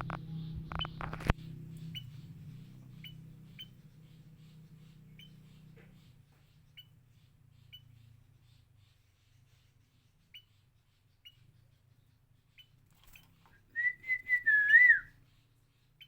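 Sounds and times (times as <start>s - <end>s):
bird chicks chirping: 0.0s - 16.0s.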